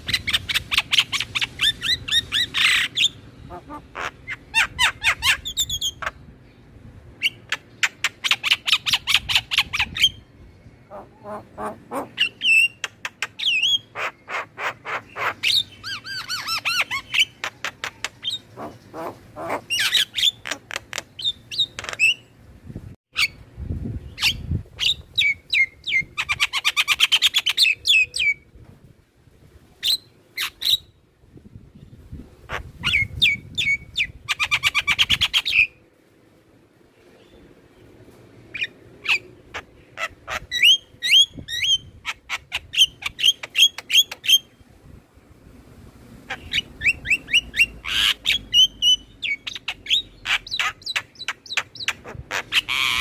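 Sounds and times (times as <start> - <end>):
myna calling: 1.9 - 5.5, 10.9 - 12.4, 16.2 - 20.8.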